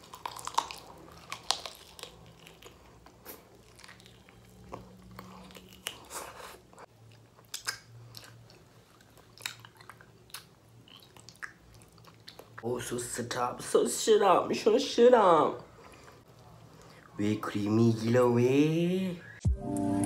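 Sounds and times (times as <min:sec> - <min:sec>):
person chewing food: 0:00.0 - 0:12.6, 0:15.6 - 0:17.2.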